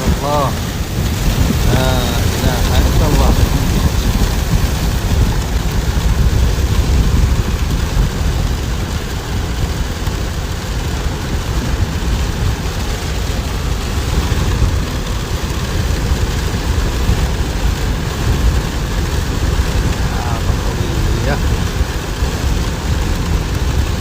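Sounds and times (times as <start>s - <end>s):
heavy rain: 0.0s - 24.0s
wind rumbling on microphone: 0.0s - 24.0s.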